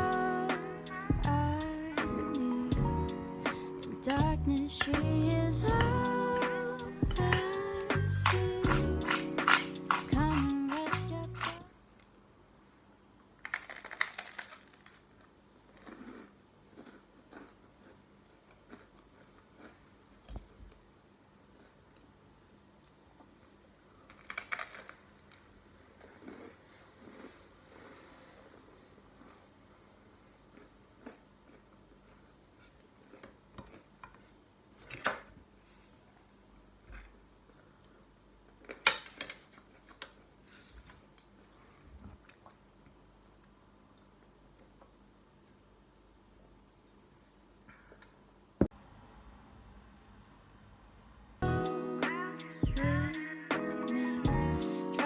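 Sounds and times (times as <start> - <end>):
close crinkling and crunching: 5.8 - 12.2, 13.4 - 20.3, 24.0 - 28.6.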